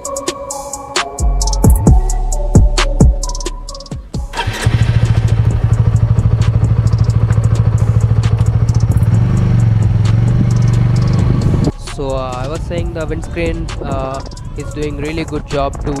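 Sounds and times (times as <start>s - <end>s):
motorcycle engine starting and idling: 4.3s - 13.4s.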